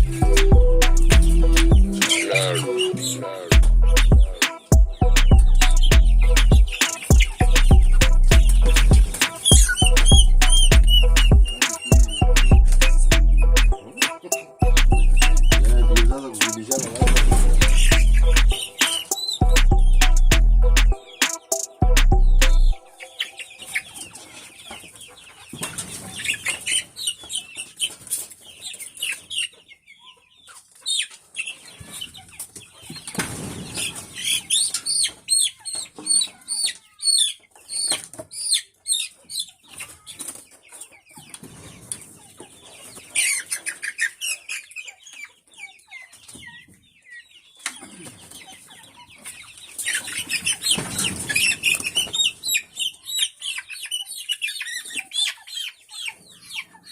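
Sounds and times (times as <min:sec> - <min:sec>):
chickens chirping: 0:00.0 - 0:56.9
wings flapping: 0:08.3 - 0:09.8.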